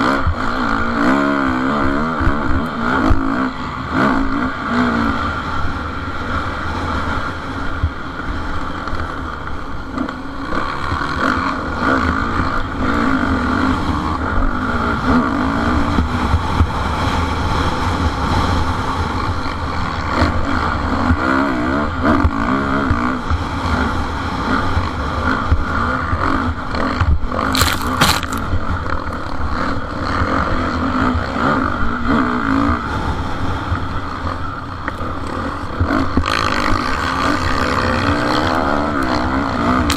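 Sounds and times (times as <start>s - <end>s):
motorcycle engines revving: 0.0s - 39.9s
short sharp crackle: 27.5s - 28.5s.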